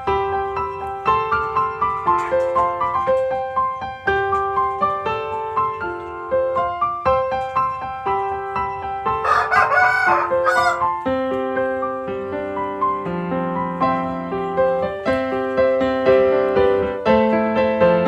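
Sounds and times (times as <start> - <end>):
piano music: 0.0 - 18.0
rooster crowing: 9.2 - 10.9.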